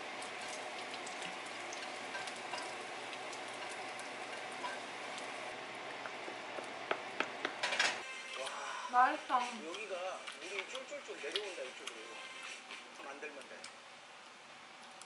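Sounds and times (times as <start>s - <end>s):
meat sizzling in a frying pan: 0.0s - 5.6s.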